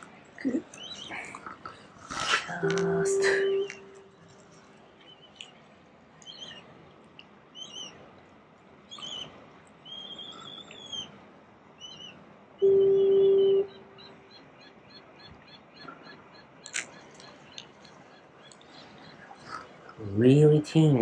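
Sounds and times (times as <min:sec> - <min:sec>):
birds chirping: 0:00.0 - 0:06.7, 0:07.5 - 0:08.1, 0:08.9 - 0:11.2, 0:11.8 - 0:21.0
loud steady low tone: 0:02.6 - 0:04.1.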